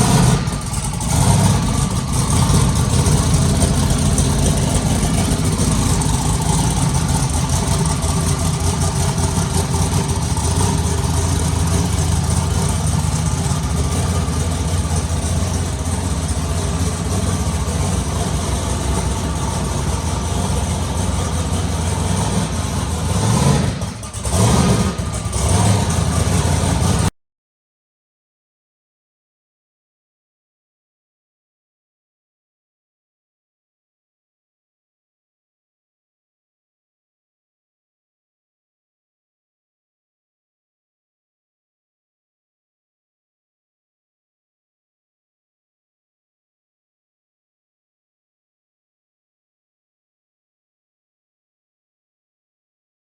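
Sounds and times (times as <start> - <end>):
car engine idling: 0.0 - 27.1
car engine revving: 0.0 - 27.1.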